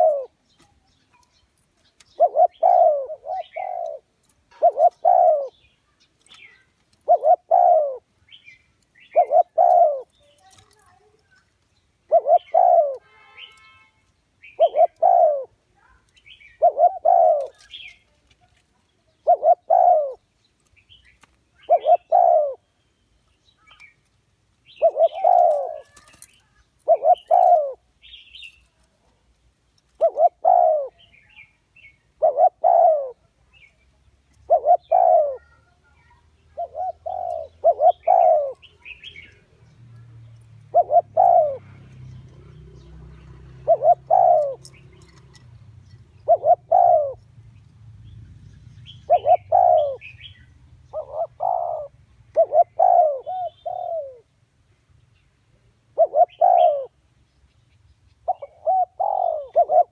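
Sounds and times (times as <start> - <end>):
dove cooing: 0.0 - 11.0, 12.0 - 13.7, 14.4 - 18.2, 19.1 - 20.2, 21.6 - 22.7, 24.7 - 27.9, 30.0 - 33.4, 34.3 - 47.4, 48.6 - 54.3, 55.9 - 57.0, 58.2 - 59.9
small birds chirping: 0.0 - 59.9.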